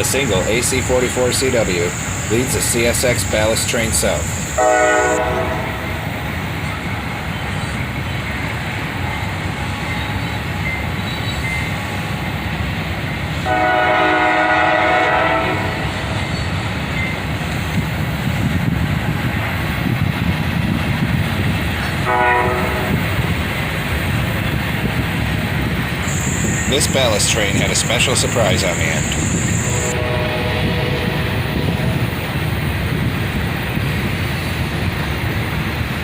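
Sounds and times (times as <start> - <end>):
diesel locomotive rumble: 0.0 - 36.0
train air horn: 4.6 - 6.0, 13.4 - 16.1, 22.0 - 23.0, 29.6 - 31.4.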